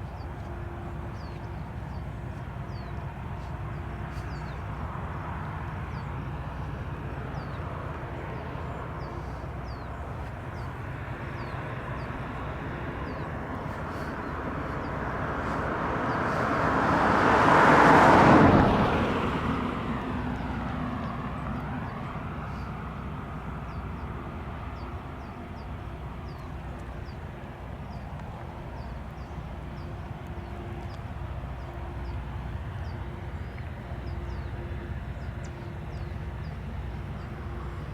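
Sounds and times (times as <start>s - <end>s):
steady low rumble: 0.0s - 17.9s
vehicle passing by: 5.9s - 27.2s.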